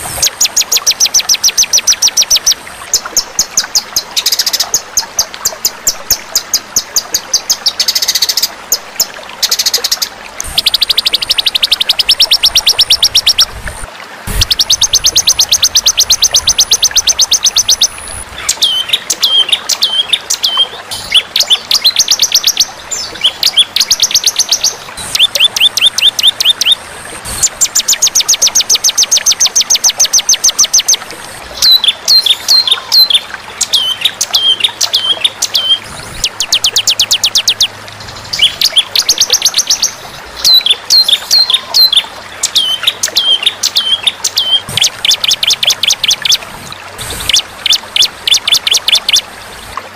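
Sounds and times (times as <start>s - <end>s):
songbird trilling: 10.5s - 13.5s, 14.3s - 26.8s, 31.6s - 46.4s.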